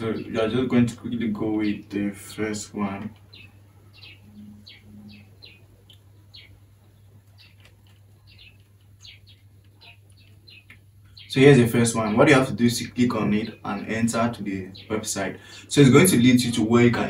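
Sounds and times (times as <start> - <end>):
faint bird chirping: 0.0 - 17.0
steady low hum: 0.0 - 17.0
short low tones: 4.2 - 5.4.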